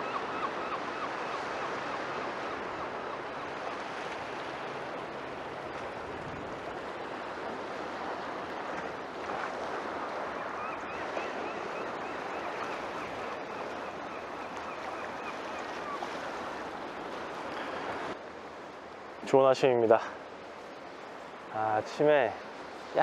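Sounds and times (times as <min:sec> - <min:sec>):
sea waves breaking on shore: 0:00.0 - 0:23.0.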